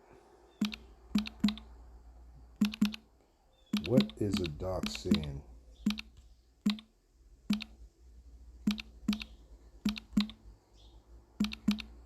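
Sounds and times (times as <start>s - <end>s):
computer keyboard key clicks: 0.6s - 1.6s, 2.6s - 3.0s, 3.8s - 5.3s, 8.7s - 10.4s, 11.4s - 12.0s.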